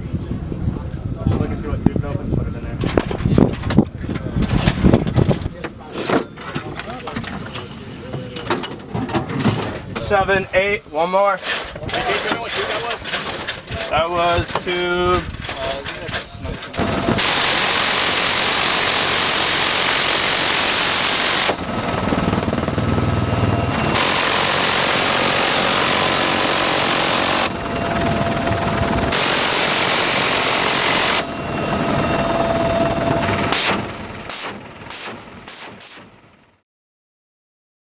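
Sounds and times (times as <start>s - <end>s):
helicopter engine and rotor: 16.7s - 35.5s
machine gun firing bursts: 16.8s - 36.0s.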